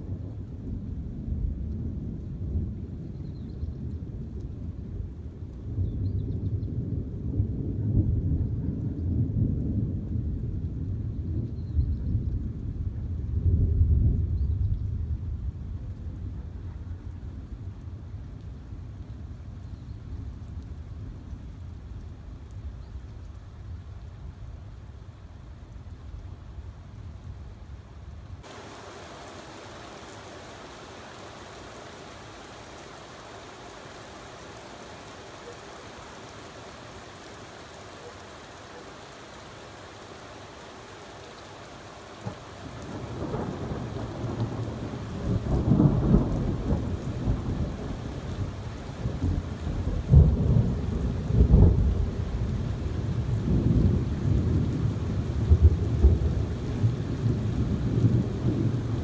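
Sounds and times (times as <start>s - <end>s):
heavy rain falling: 28.4s - 59.0s
thunder crack and rumbles: 42.2s - 59.0s.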